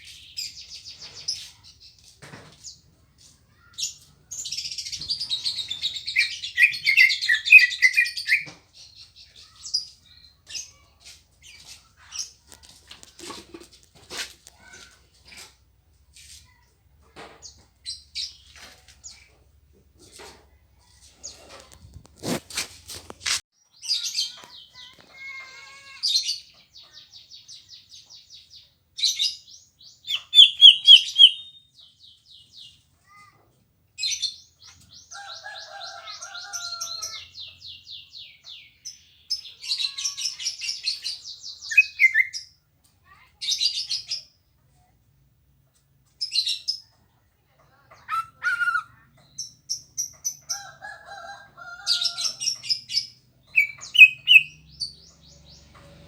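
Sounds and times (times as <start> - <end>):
bird singing trills and chirps: 3.5 - 12.4, 23.6 - 33.3, 34.0 - 42.6, 47.7 - 50.8, 51.7 - 56.0.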